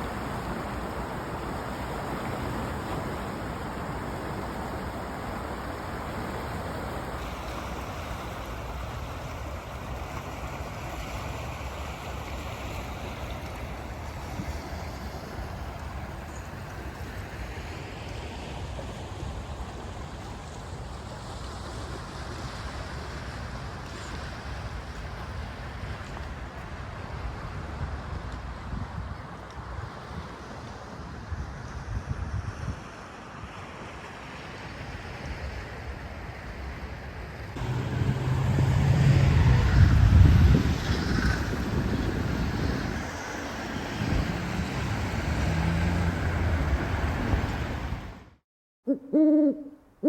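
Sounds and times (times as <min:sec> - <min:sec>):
floodwater rushing: 0:00.0 - 0:28.3, 0:36.6 - 0:48.3
wind buffeting microphone: 0:37.6 - 0:48.2
outdoor rushing noise: 0:37.6 - 0:48.4
vehicle engine hum approaching: 0:37.6 - 0:48.4.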